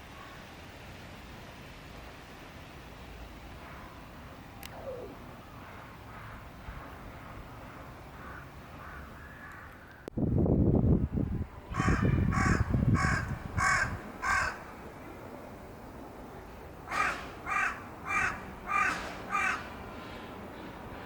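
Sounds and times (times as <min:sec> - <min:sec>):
crow cawing: 0:08.2 - 0:09.8, 0:11.8 - 0:14.6, 0:16.9 - 0:19.7.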